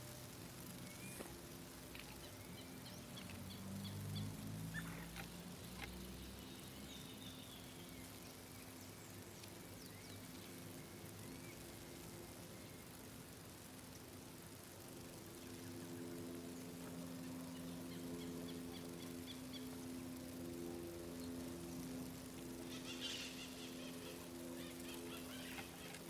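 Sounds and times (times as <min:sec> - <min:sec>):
faint low hum: 0:00.0 - 0:26.0
small birds chirping: 0:00.6 - 0:14.0, 0:21.1 - 0:26.0.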